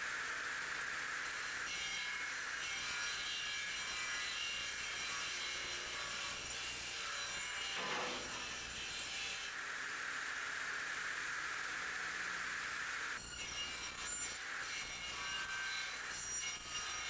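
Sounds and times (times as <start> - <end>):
cutting tool rasping: 7.5 - 9.4.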